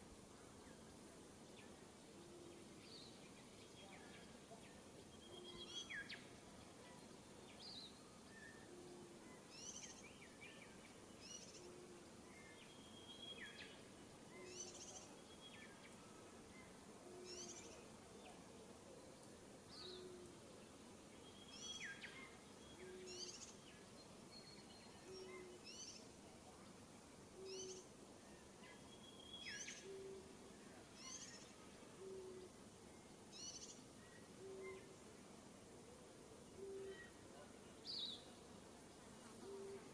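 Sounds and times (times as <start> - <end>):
faint birdsong: 0.0 - 39.9
outdoor hiss: 0.0 - 39.9
low hoot: 29.8 - 30.3, 36.6 - 37.2, 39.4 - 39.9.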